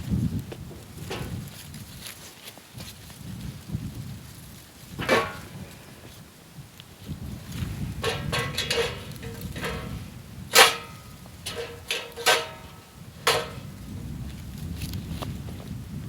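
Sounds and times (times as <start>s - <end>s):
metal fire pit parts clanking: 1.0s - 1.5s, 4.9s - 6.1s, 7.4s - 14.4s
low outdoor rumble: 7.2s - 16.0s.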